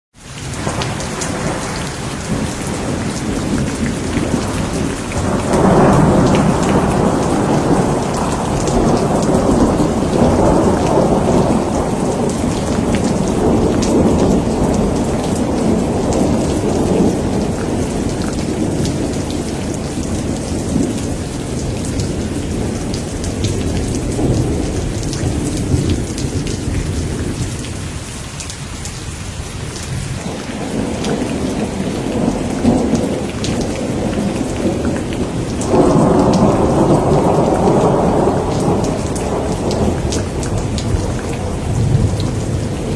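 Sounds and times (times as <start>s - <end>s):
steady rain: 0.1s - 42.9s
rolling thunder: 0.5s - 28.0s, 29.7s - 42.9s.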